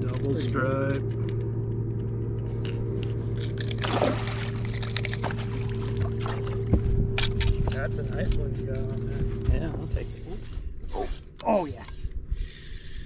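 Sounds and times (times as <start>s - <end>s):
boat motor humming: 0.0s - 13.0s
water splash: 3.8s - 6.8s.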